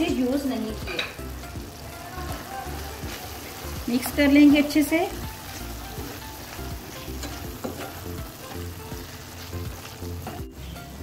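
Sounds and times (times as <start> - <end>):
meat sizzling in a pan: 0.0 - 11.0
wooden spatula scraping: 2.4 - 10.4.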